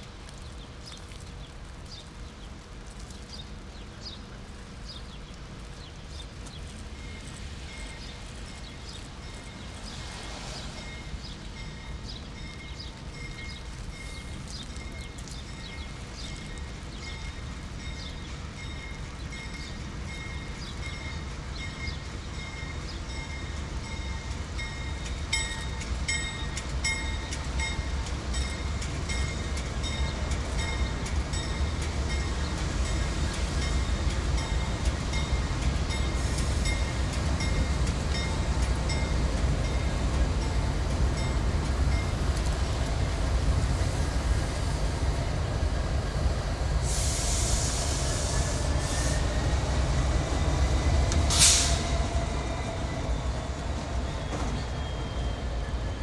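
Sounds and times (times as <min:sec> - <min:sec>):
train rumble: 0:00.0 - 0:56.0
burst of hiss: 0:46.8 - 0:49.6, 0:51.2 - 0:52.5.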